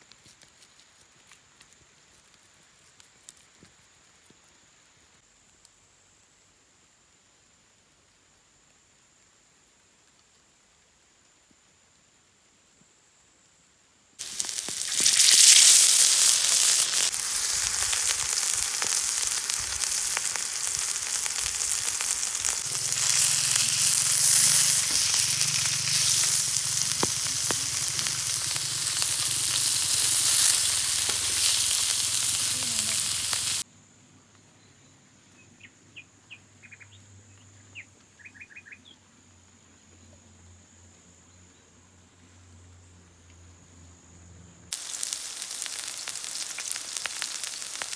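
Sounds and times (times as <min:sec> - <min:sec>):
food sizzling in a pan: 0:14.2 - 0:33.6, 0:44.7 - 0:47.9.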